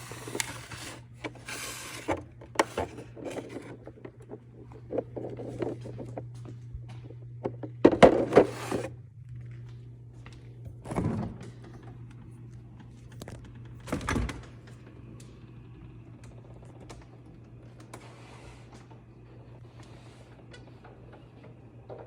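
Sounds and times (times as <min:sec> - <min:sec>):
steady low hum: 0:00.0 - 0:22.0
items knocking when set down: 0:07.4 - 0:08.9.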